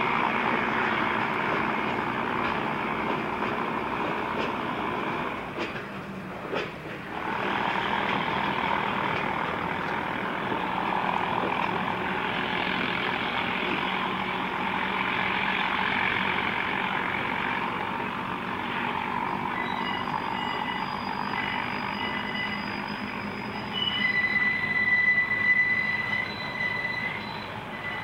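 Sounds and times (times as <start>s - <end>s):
freight train rumbling: 0.0s - 28.0s
high-pitched wheel squeal: 18.7s - 28.0s.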